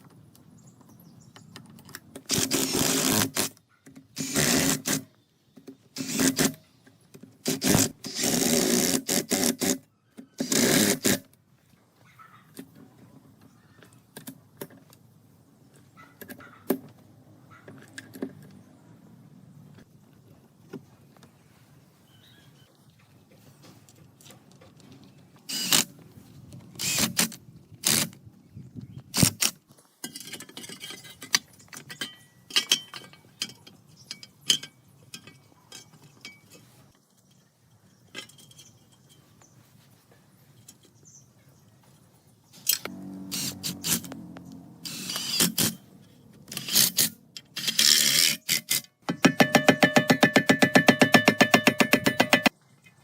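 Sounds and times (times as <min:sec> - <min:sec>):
metal tools clinking and rattling: 0:30.0 - 0:39.6.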